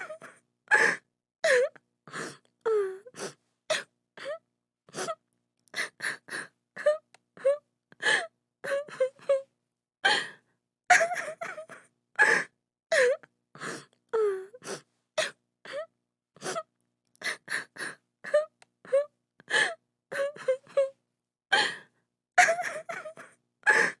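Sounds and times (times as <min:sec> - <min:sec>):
woman sobbing: 0:10.9 - 0:13.2, 0:20.1 - 0:20.9, 0:22.4 - 0:24.0.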